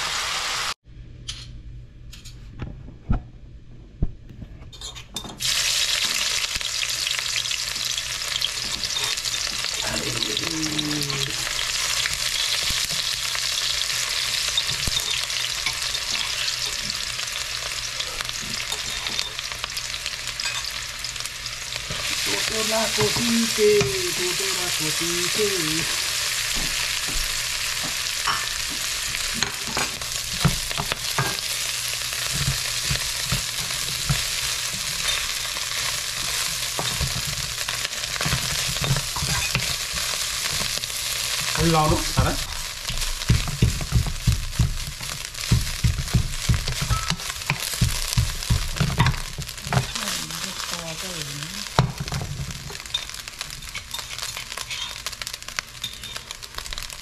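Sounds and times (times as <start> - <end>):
onions sizzling in hot oil: 0.0 - 0.8, 5.4 - 57.0
wooden spoon scraping a pan: 52.0 - 55.2.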